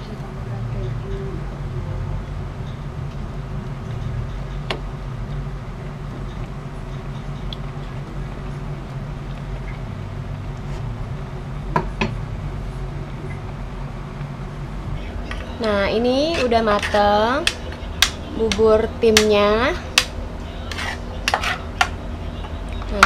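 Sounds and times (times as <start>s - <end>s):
low hum: 0.0s - 23.0s
spoon stirring thick porridge: 16.3s - 18.7s, 20.6s - 22.0s.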